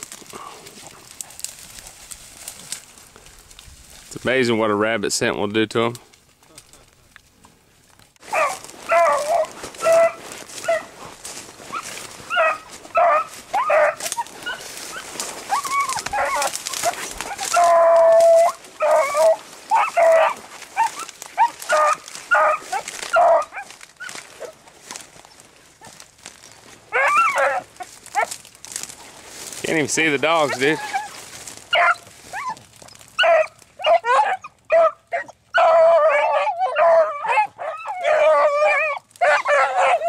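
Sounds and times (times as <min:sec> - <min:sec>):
dogs baying: 0:08.2 - 0:28.4, 0:30.2 - 0:40.0.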